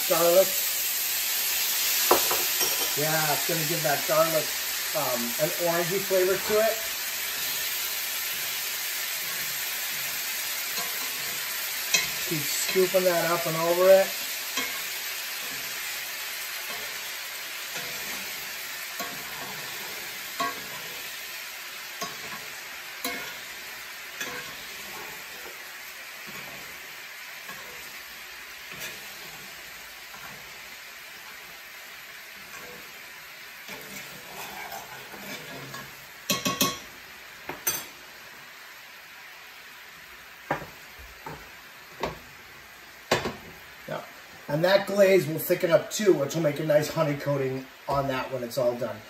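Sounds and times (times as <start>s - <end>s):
scallops sizzling in a skillet: 0.0s - 49.0s
spoon scraping a pan: 2.1s - 3.0s, 9.0s - 25.6s, 28.7s - 30.7s, 33.6s - 36.9s.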